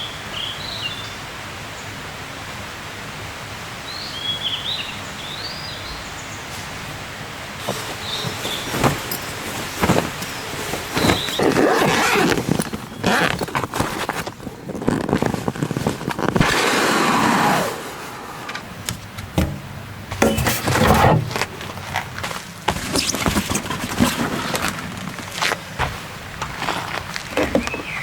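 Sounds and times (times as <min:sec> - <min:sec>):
material rustling and swishing: 0:07.6 - 0:16.7, 0:19.0 - 0:27.8
clicks and knocks: 0:18.6 - 0:21.7.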